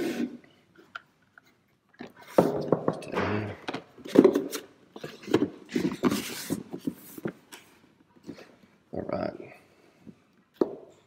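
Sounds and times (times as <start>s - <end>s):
rustling scrapes of a box: 5.0s - 7.3s.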